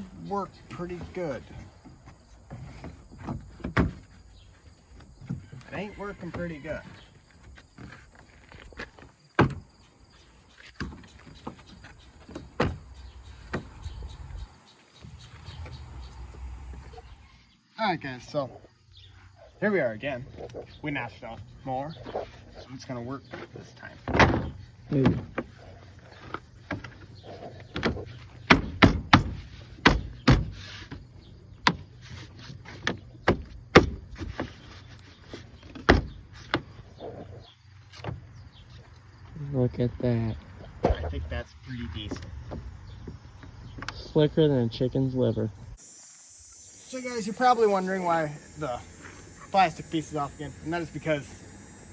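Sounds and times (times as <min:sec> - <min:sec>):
tailgate clunking and knocking: 0:02.4 - 0:04.2, 0:09.4 - 0:09.7, 0:10.8 - 0:14.1, 0:23.4 - 0:25.6, 0:26.6 - 0:30.6, 0:35.7 - 0:36.9, 0:40.8 - 0:44.0.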